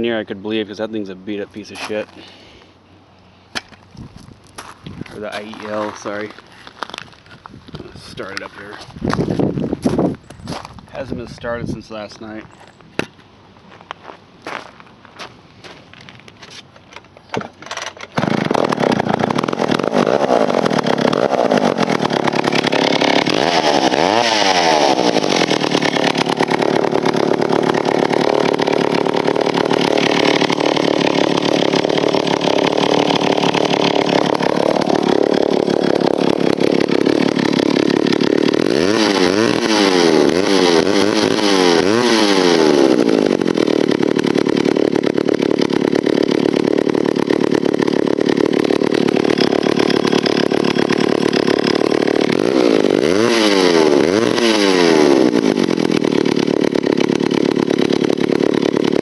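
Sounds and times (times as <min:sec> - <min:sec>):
chainsaw engine revving: 0:16.9 - 0:59.0.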